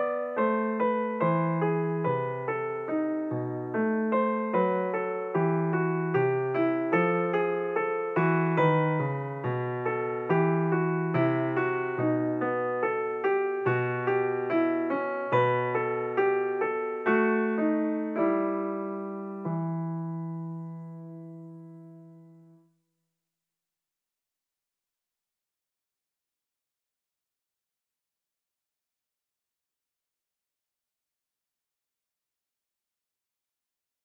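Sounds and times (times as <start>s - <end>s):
slow solo piano: 0.0s - 22.8s.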